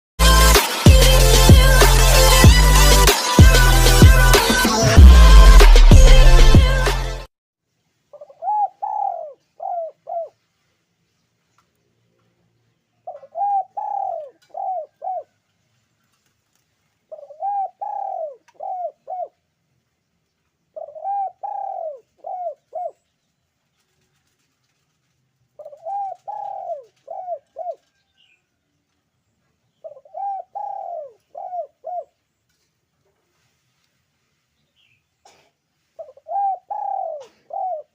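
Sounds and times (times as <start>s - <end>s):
dove cooing: 8.1s - 10.4s, 13.0s - 15.4s, 17.1s - 19.4s, 20.8s - 23.0s, 25.6s - 28.1s, 29.8s - 32.2s, 36.0s - 37.9s.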